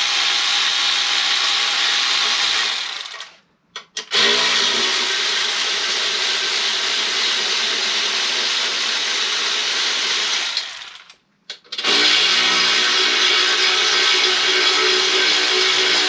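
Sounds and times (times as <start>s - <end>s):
power tool motor running: 11.8s - 16.0s.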